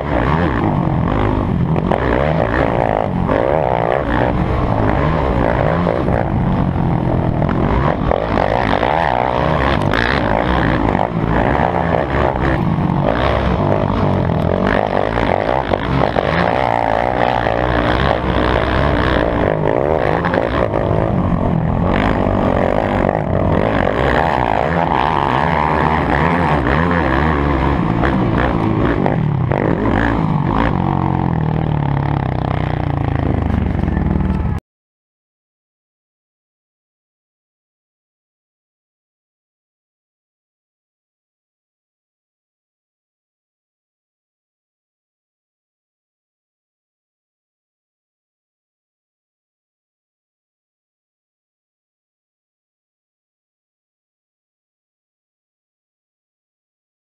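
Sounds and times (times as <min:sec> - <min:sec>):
dirt bike engines revving: 0:00.0 - 0:34.6.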